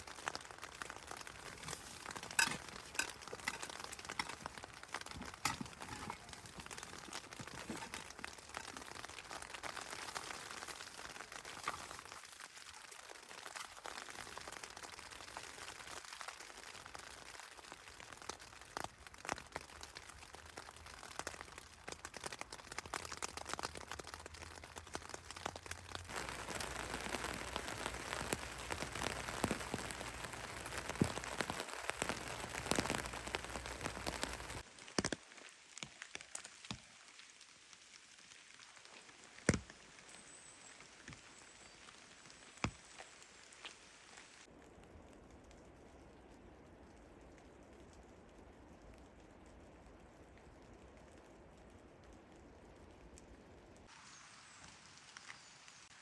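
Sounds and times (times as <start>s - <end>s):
rain patter: 0.0s - 56.0s.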